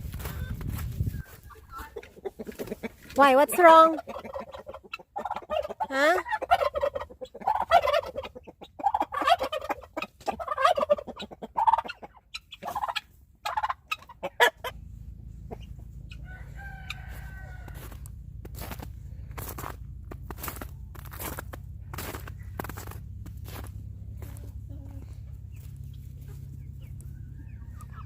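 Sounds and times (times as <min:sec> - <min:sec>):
chickens clucking: 0:00.0 - 0:28.0
low steady hum: 0:00.0 - 0:28.0.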